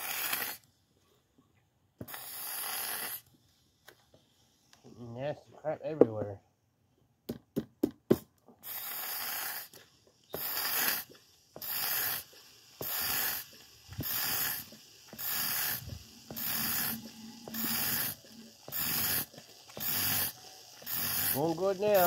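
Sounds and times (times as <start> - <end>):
hand pump sucking fluid: 2.0 - 3.3, 8.6 - 22.0.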